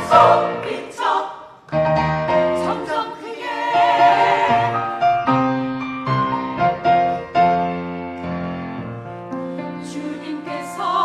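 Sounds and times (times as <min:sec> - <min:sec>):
piano playing: 0:00.0 - 0:00.9, 0:01.7 - 0:03.0, 0:03.7 - 0:11.0
singers holding a note: 0:00.0 - 0:01.6.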